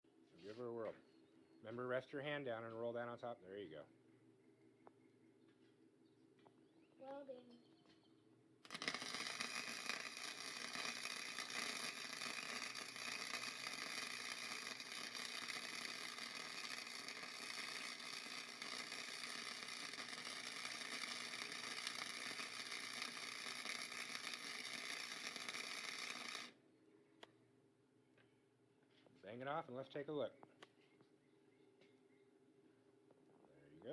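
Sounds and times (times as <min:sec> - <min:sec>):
electric arc welding: 0:08.6 - 0:26.6.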